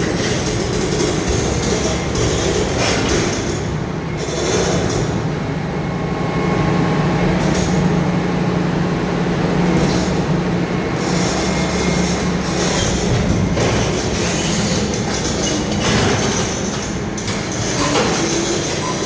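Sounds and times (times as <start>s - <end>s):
excavator diesel engine running: 0.0s - 19.0s
metallic squealing of steel tracks: 11.0s - 19.0s.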